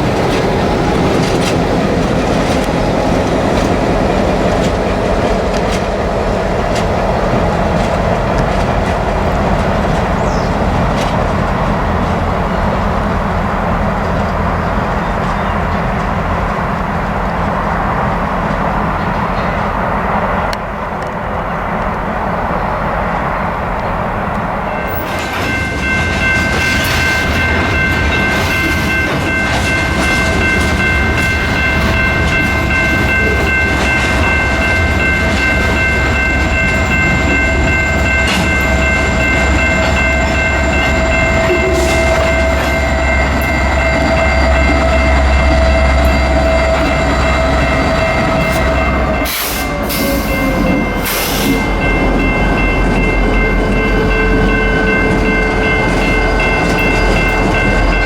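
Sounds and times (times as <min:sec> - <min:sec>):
train rumbling past: 0:00.0 - 0:58.0
steady high tones: 0:24.7 - 0:58.0.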